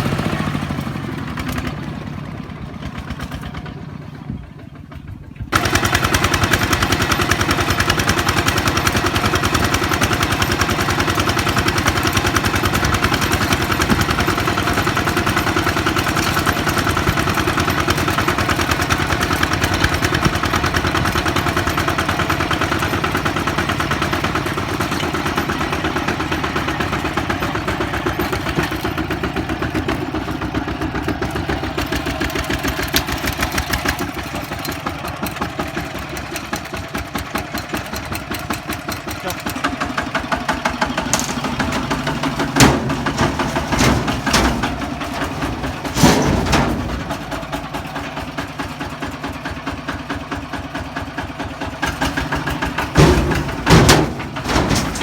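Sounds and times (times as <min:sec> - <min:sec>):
diesel engine chugging: 0:00.0 - 0:55.0.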